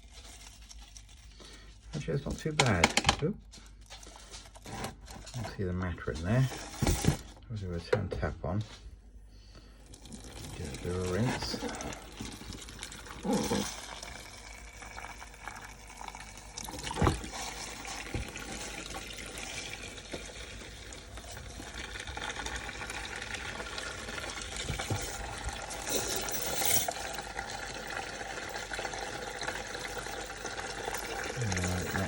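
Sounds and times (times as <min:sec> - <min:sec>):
tap water running and splashing: 0:09.8 - 0:32.0.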